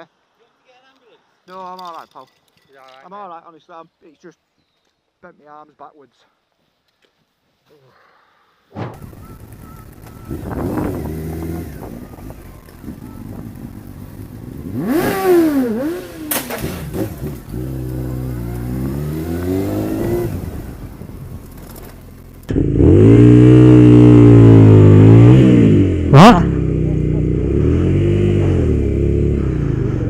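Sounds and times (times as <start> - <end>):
motorcycle engine revving: 9.0 - 30.0.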